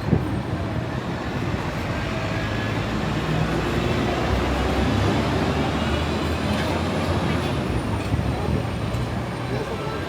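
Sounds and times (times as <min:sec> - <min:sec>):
city traffic rumble: 0:00.0 - 0:10.0.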